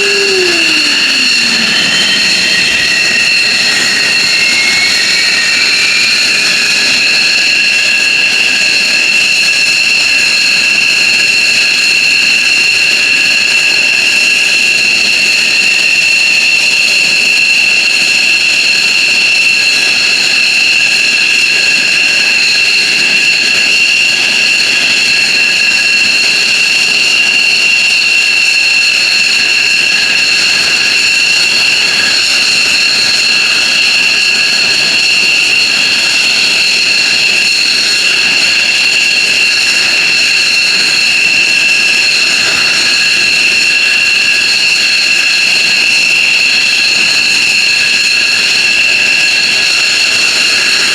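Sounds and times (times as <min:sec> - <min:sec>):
jet engines whining: 0:00.0 - 0:08.8, 0:29.6 - 0:50.9.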